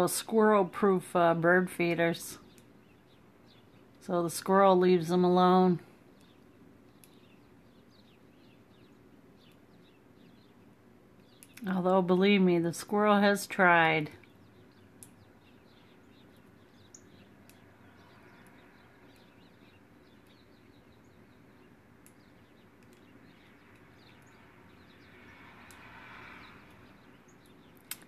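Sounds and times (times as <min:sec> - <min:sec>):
faint bird chirps: 0:05.9 - 0:11.8, 0:14.1 - 0:28.0
tiny clicks: 0:11.2 - 0:11.7, 0:22.0 - 0:24.4, 0:26.6 - 0:28.0.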